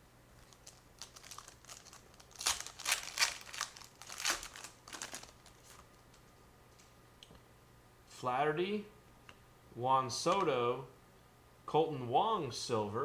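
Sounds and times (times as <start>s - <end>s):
foil wrapper crinkling: 0.4s - 6.9s.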